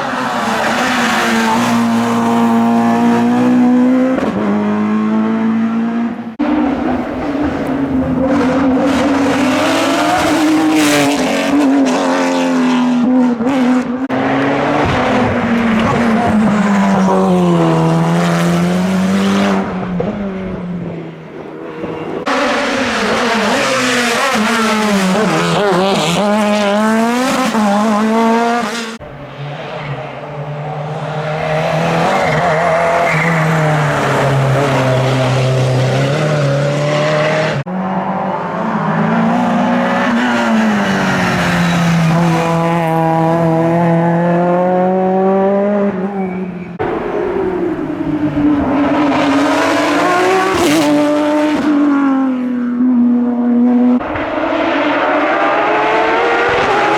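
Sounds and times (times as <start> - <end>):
race car engines revving high: 0.0 - 56.9.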